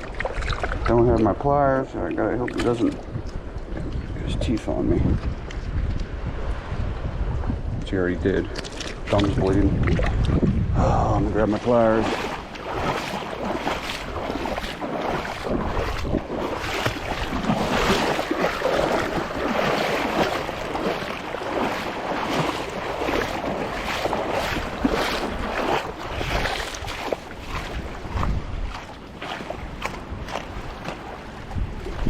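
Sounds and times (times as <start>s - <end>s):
wind gusting across microphone: 0.0s - 32.0s
surf washing against rocks: 11.2s - 32.0s.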